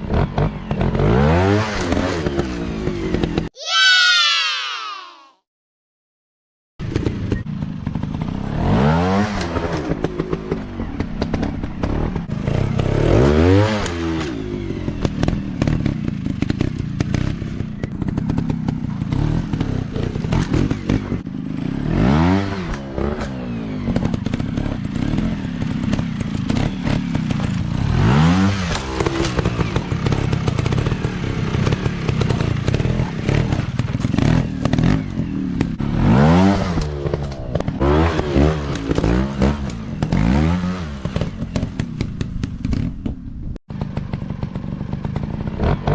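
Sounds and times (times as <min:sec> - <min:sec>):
dirt bike engines revving: 0:06.9 - 0:42.3.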